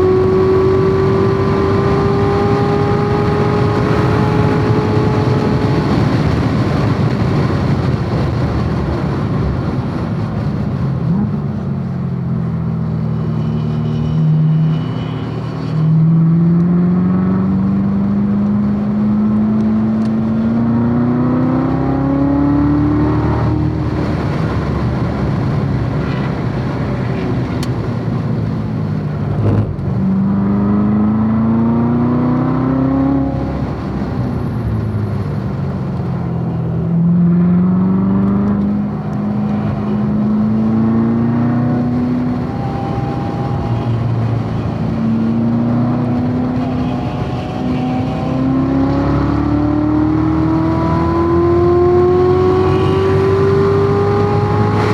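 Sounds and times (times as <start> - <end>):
car engine revving: 0.0 - 54.9.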